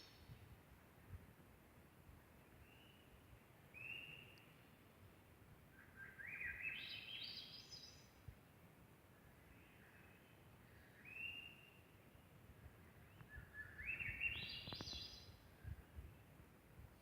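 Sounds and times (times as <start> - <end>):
low background hiss: 0.0 - 17.0
birdsong climbing upward: 13.1 - 15.4.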